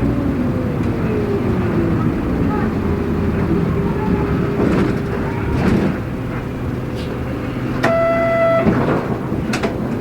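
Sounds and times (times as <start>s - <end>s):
bus diesel engine running: 0.0s - 10.0s
buzzer-like tone: 7.9s - 8.7s.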